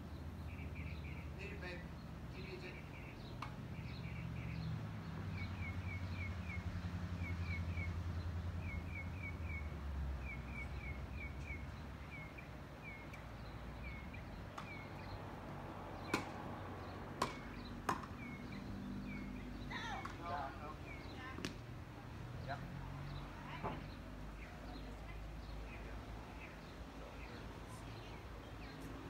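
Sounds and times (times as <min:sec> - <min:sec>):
small bird chirping: 0:00.0 - 0:15.2
sharp knocks: 0:16.1 - 0:16.4, 0:17.2 - 0:18.2.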